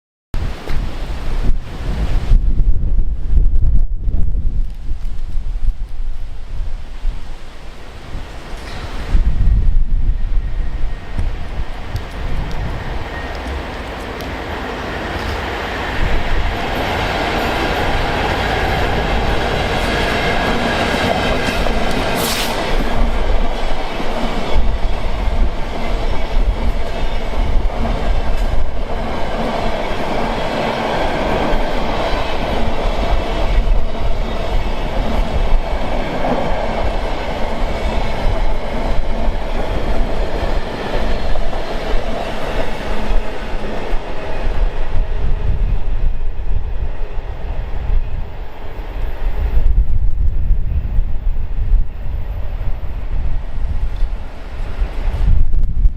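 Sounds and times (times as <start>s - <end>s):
wind buffeting microphone: 0.4s - 55.9s
high squeal: 12.6s - 14.1s.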